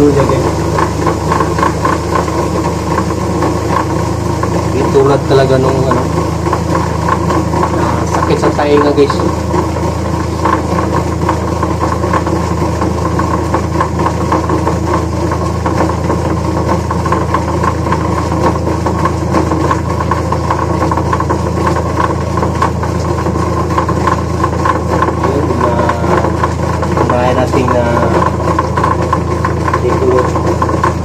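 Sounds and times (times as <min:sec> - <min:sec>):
washing machine motor humming: 0:00.0 - 0:31.0.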